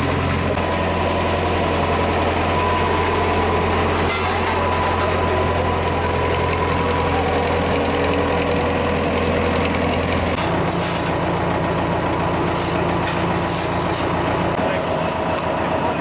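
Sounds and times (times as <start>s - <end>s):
heavy machinery engine rumbling: 0.0s - 16.0s
rattling noise: 10.2s - 15.5s.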